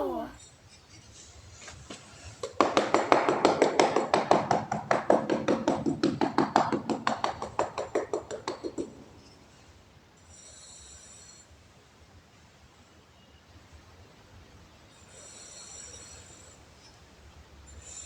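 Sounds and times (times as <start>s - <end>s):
rapid sharp tapping: 2.4s - 9.2s.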